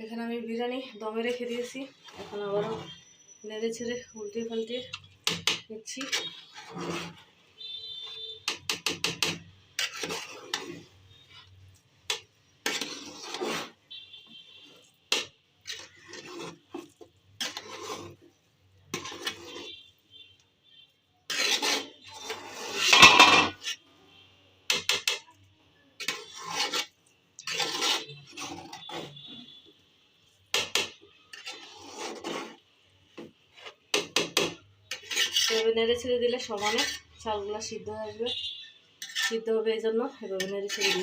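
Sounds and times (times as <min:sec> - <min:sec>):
spatula scraping a cooking pot: 0:01.3 - 0:20.4, 0:21.2 - 0:23.9, 0:24.7 - 0:25.3, 0:26.0 - 0:29.7, 0:30.4 - 0:37.5, 0:39.0 - 0:39.6, 0:40.2 - 0:41.0.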